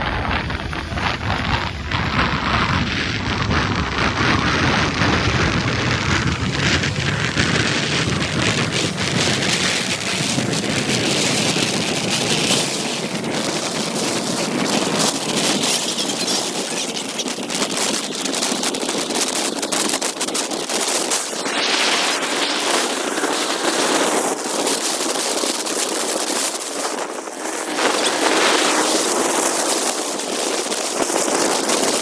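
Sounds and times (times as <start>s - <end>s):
low rumble: 0.0s - 9.2s
motorcycle road noise: 0.0s - 32.0s
wind rushing over microphone: 0.0s - 32.0s.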